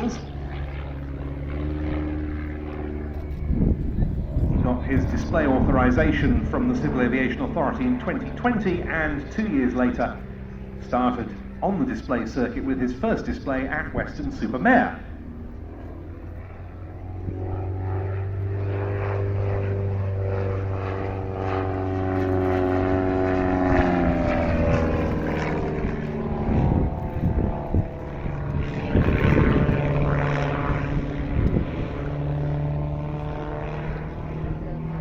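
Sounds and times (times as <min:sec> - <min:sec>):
propeller plane engine in flight: 0:00.0 - 0:35.0.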